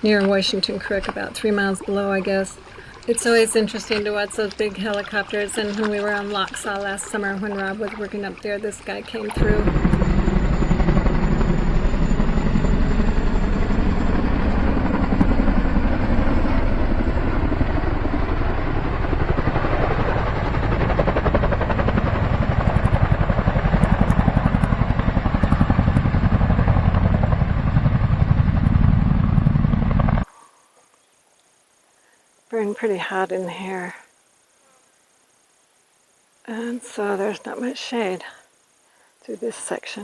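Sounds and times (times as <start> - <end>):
helicopter rotor beating: 0.0 - 30.3
turbine whine: 9.3 - 30.3.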